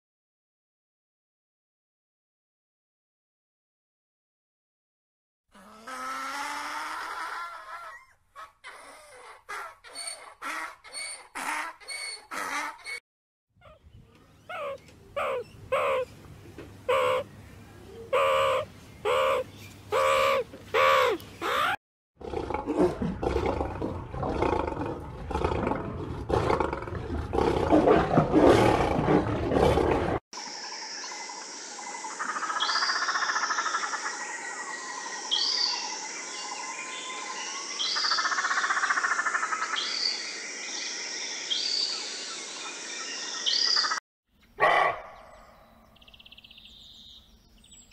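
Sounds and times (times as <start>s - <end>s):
peacock calling: 13.6s - 16.2s, 16.8s - 21.8s
small birds chirping: 13.6s - 21.8s, 45.2s - 47.9s
meerkat short calls: 14.5s - 16.1s, 16.9s - 17.2s, 18.1s - 21.8s
animal rough roaring call: 22.2s - 30.2s.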